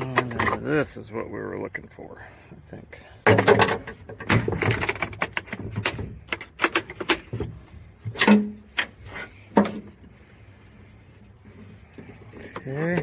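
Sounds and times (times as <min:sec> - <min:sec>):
objects being handled: 0:03.2 - 0:13.0.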